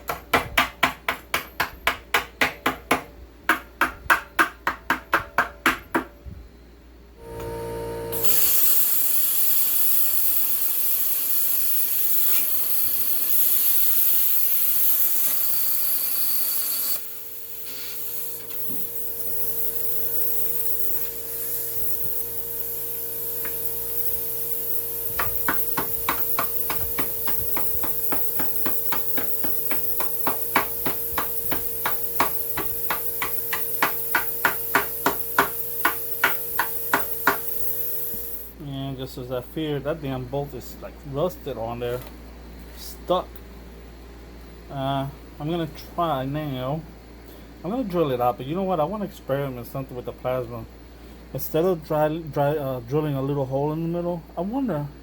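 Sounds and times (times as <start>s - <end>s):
steady hiss: 8.1s - 43.3s
hand ratchet clicking: 8.2s - 17.1s, 18.4s - 38.4s.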